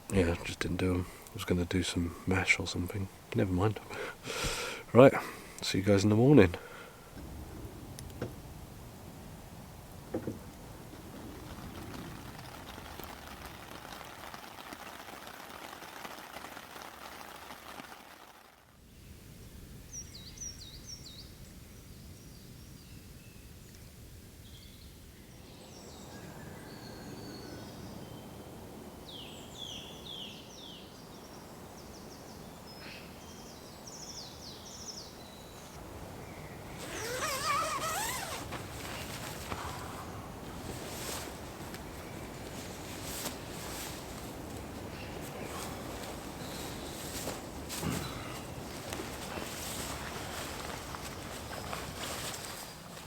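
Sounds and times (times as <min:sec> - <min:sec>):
rain pattering: 0:00.0 - 0:18.8, 0:37.9 - 0:52.0
small birds chirping: 0:22.0 - 0:39.2, 0:44.8 - 0:52.8.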